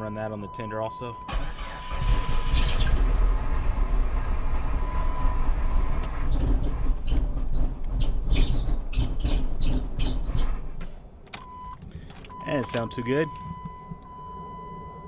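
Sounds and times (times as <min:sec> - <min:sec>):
squeaky drive belt chirps: 0:06.1 - 0:10.6.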